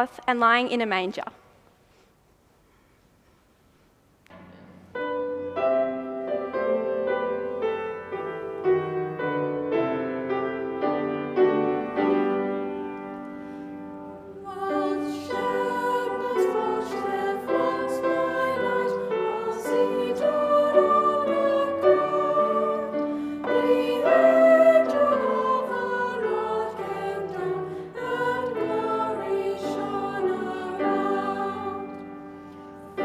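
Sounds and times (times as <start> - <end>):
piano playing: 4.4 - 33.0
choir singing: 13.9 - 33.0.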